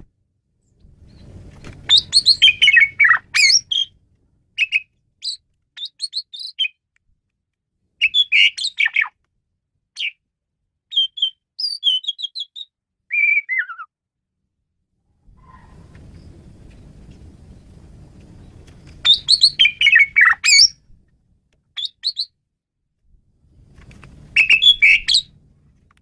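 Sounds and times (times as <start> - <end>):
starling singing: 1.9 - 4.0, 4.6 - 6.8, 8.0 - 9.1, 10.9 - 13.9, 19.0 - 20.8, 21.8 - 22.3, 24.4 - 25.3.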